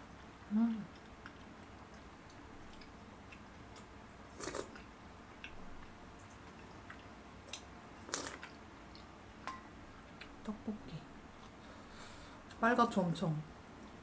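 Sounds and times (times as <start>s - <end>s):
chewing food: 0.1s - 10.5s.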